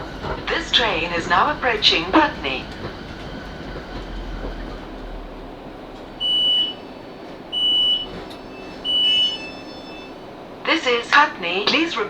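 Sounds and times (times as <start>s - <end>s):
low rumble: 0.0s - 9.1s
electric train running noise: 0.0s - 12.0s
high-pitched door warning beeps: 6.2s - 6.8s, 7.5s - 10.2s.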